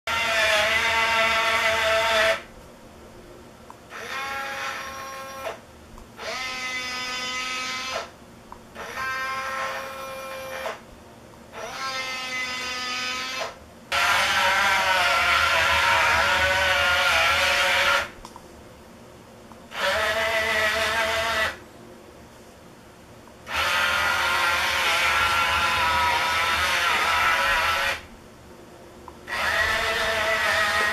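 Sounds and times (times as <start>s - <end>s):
small electric motors whining: 0.1s - 2.5s, 3.9s - 5.6s, 6.2s - 8.1s, 8.8s - 10.8s, 11.5s - 18.2s, 19.7s - 21.6s, 23.5s - 28.1s, 29.3s - 30.9s.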